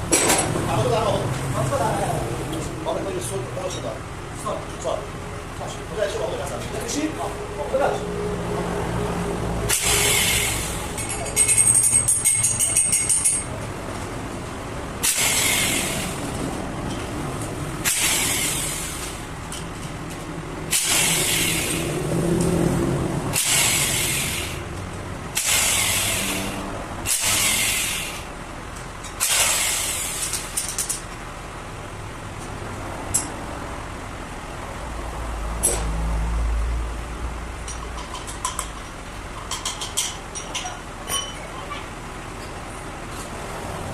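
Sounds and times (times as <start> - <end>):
bursts of hissing air: 9.7 - 11.0, 15.0 - 16.3, 17.8 - 19.2, 20.7 - 22.0, 23.3 - 24.7, 25.3 - 28.3, 29.2 - 30.5.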